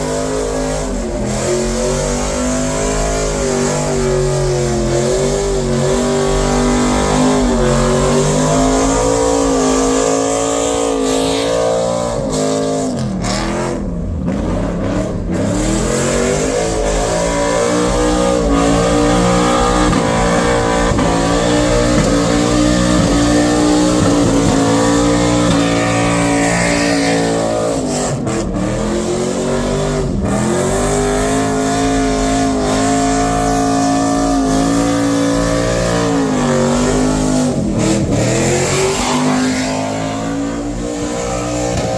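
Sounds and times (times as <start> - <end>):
car engine revving hard: 0.0 - 41.9.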